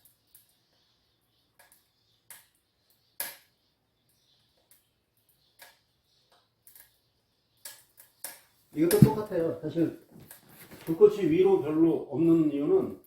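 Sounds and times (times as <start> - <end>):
wood stove clicks and pops: 1.5 - 3.5, 7.6 - 9.5.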